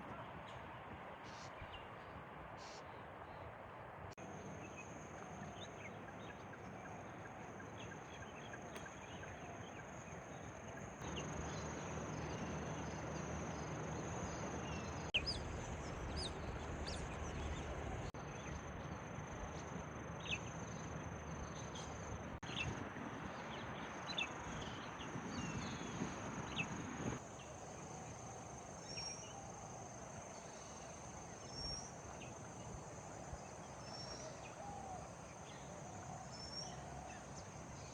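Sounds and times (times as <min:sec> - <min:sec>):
bird chirps: 0:11.0 - 0:22.7.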